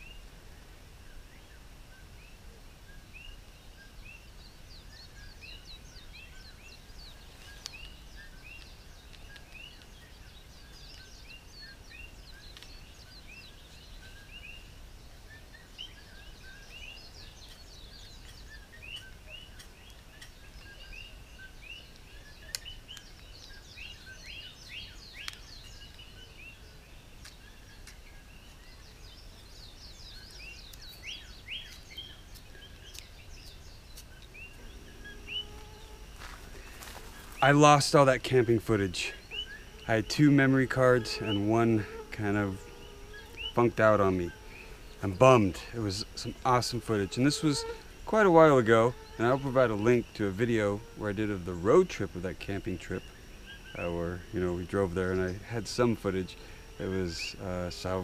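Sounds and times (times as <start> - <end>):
small birds chirping: 0.0 - 58.0
low outdoor rumble: 33.2 - 58.0.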